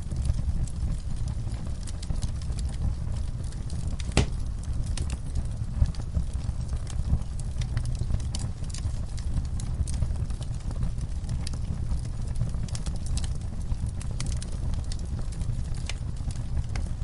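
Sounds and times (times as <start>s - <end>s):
low rumble of flames: 0.0s - 17.0s
wood fire crackling: 0.0s - 17.0s
sharp fire pop: 4.0s - 4.5s.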